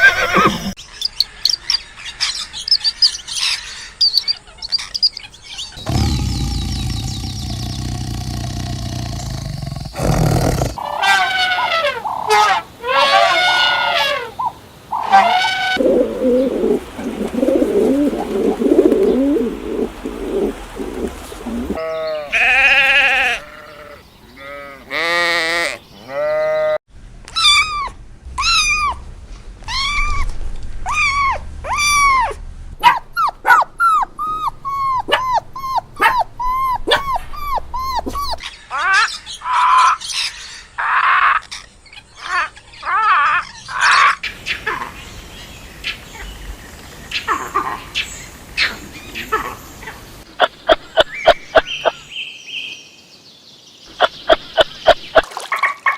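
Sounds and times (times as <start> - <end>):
animal bleating: 21.8 - 26.8.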